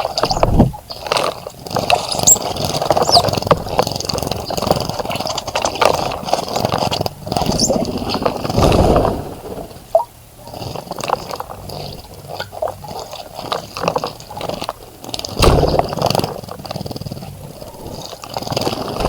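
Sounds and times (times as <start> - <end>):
high bird chirps: 3.0 - 3.3.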